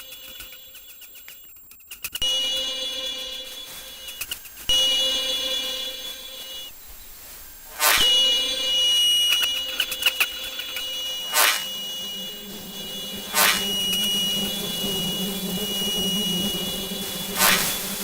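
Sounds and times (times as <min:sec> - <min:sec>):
steady high-pitched tone: 0:02.2 - 0:18.0
low hum: 0:09.4 - 0:18.0
loud whooshing rushes: 0:11.2 - 0:18.0.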